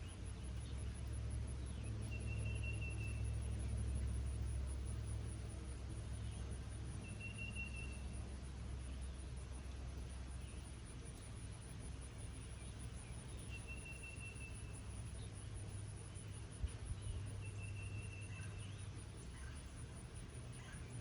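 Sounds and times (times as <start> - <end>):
high insect trill: 0.0 - 21.0
light rain hiss: 0.0 - 21.0
bird chirps: 13.1 - 15.2.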